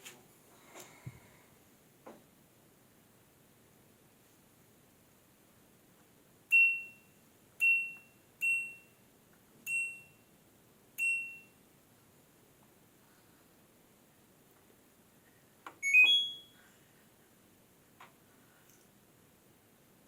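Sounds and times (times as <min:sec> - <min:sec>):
washing machine short high beeps: 0:06.5 - 0:09.0, 0:09.7 - 0:10.3, 0:11.0 - 0:11.6, 0:15.8 - 0:16.6.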